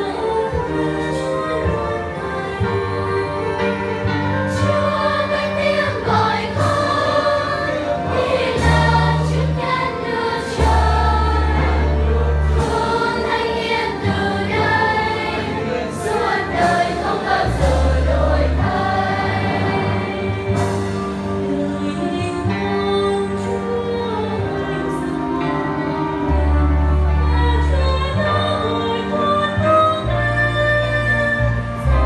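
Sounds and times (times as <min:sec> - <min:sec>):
children's choir singing a hymn: 0:00.0 - 0:22.7
instrumental accompaniment with bass: 0:00.0 - 0:32.0.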